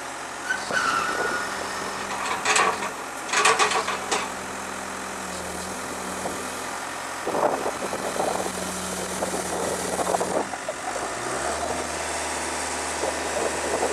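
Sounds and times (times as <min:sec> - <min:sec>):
diesel engine running: 0:00.0 - 0:13.9
irregular clatter: 0:02.0 - 0:04.4.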